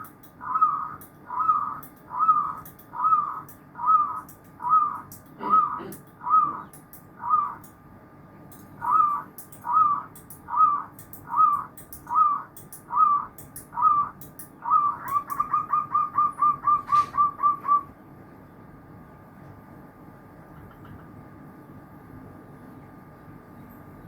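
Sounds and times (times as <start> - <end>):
dove cooing: 0.0 - 7.6, 8.8 - 18.0.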